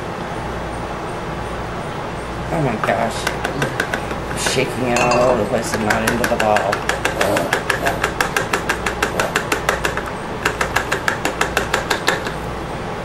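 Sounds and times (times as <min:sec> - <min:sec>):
utensil clinking against container: 0:03.4 - 0:08.0.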